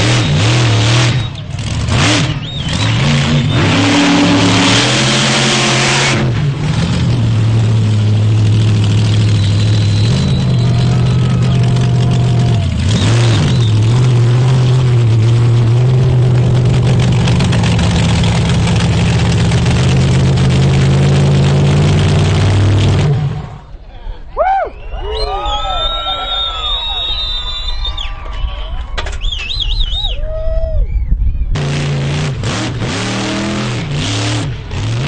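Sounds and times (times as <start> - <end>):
monster truck engine revving: 0.0 - 23.8, 31.5 - 35.0.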